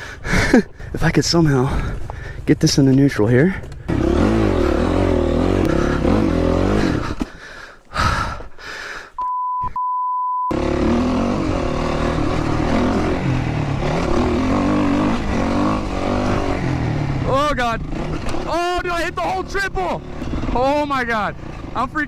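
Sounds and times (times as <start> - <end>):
dirt bike engine running: 3.5 - 7.2, 10.5 - 22.0
censor bleep tone: 9.2 - 10.5.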